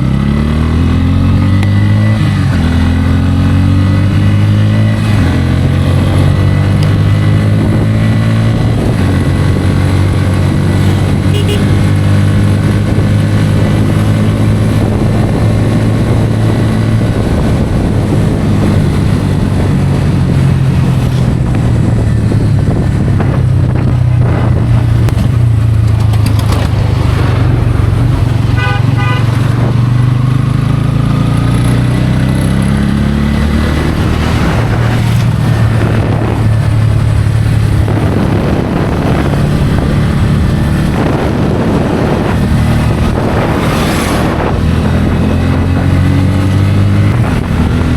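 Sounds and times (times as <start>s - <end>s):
motorcycle engine running: 0.0s - 47.9s
wind and road noise: 0.0s - 47.9s
horn short beeps: 11.2s - 11.8s, 28.6s - 29.5s.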